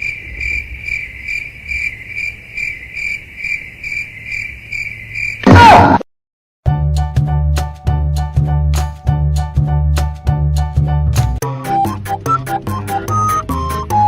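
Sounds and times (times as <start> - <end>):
cricket chirping: 0.0 - 5.4.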